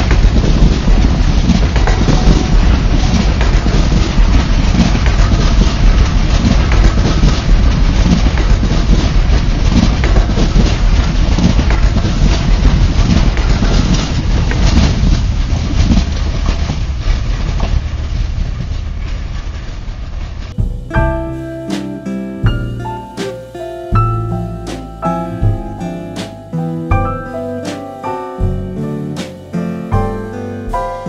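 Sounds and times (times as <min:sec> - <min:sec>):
wheels clicking on rails: 0:00.0 - 0:16.9
wind buffeting microphone: 0:00.0 - 0:19.7
train rumbling past: 0:00.0 - 0:21.5.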